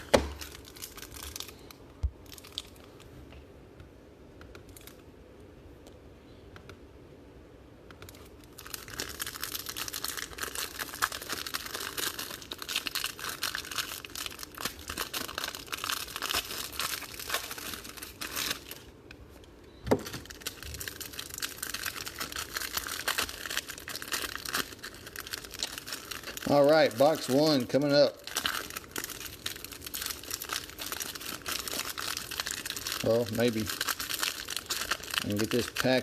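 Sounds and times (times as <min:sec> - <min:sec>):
plastic wrapping crinkling and tearing: 0:00.0 - 0:03.0, 0:08.1 - 0:36.0.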